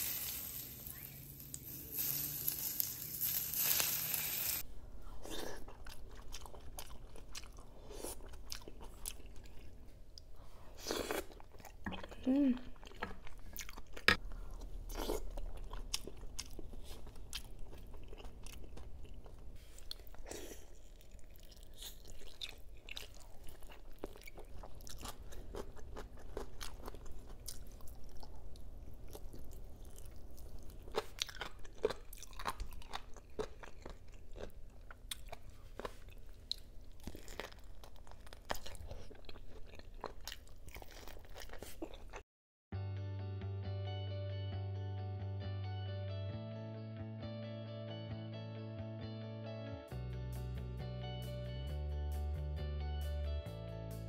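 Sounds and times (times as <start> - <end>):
person chewing and biting: 5.3 - 9.8, 12.8 - 42.2
guitar music: 42.7 - 54.0.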